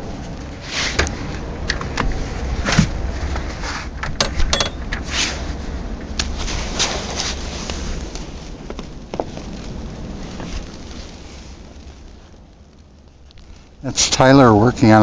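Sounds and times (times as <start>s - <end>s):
wind buffeting microphone: 0.0s - 15.0s
clicks and knocks: 4.0s - 5.0s.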